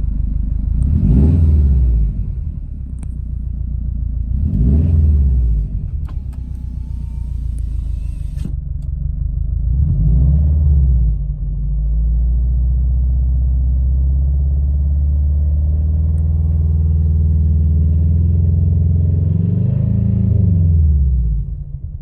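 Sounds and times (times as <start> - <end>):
car engine revving: 0.0 - 3.1, 4.2 - 8.6, 14.6 - 21.7
engine rattling: 14.5 - 18.8.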